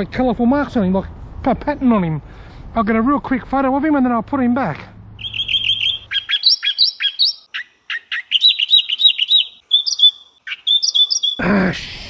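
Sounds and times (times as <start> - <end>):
small bird chirping: 5.2 - 11.4.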